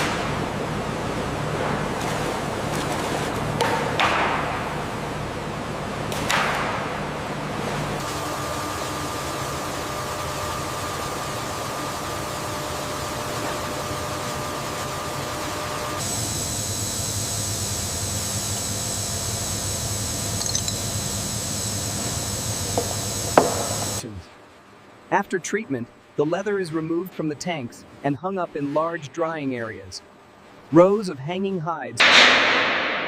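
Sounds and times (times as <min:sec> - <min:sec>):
factory machinery hum and hiss: 0:00.0 - 0:33.0
machine with high whine: 0:07.4 - 0:24.2.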